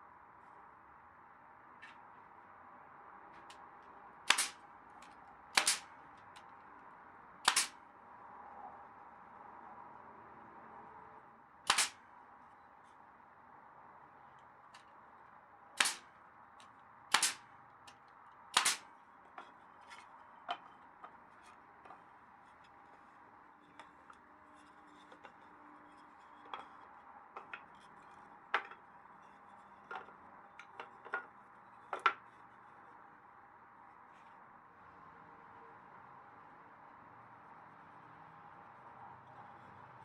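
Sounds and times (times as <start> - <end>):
sharp knocks on wooden planks: 4.3 - 4.6, 5.6 - 5.9, 7.5 - 7.7, 11.7 - 12.0, 15.8 - 16.0, 17.1 - 17.4, 18.6 - 18.8.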